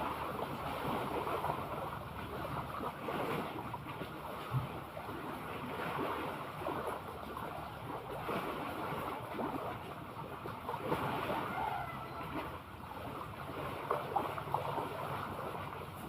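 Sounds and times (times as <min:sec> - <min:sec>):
sea water lapping: 0:00.0 - 0:16.0.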